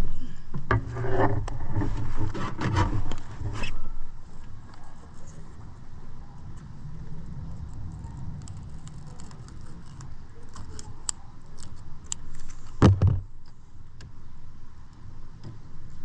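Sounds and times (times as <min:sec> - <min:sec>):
loud thump: 0:12.8 - 0:13.3.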